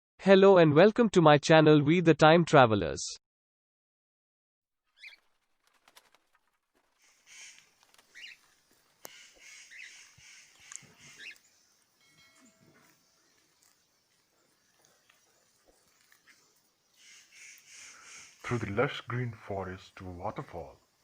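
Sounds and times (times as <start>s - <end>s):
birds calling faintly: 4.9s - 21.0s.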